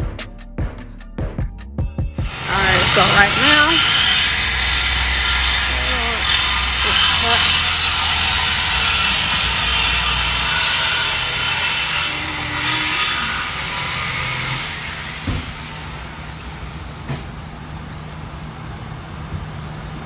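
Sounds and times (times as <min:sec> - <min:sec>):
power tool grinding metal pipe: 0:02.2 - 0:16.9.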